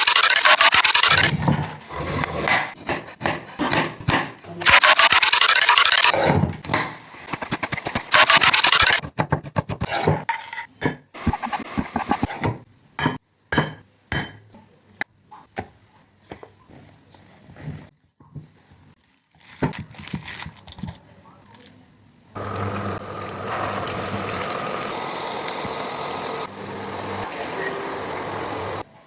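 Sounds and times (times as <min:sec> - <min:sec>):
knife chopping on wooden board: 0:01.3 - 0:04.4.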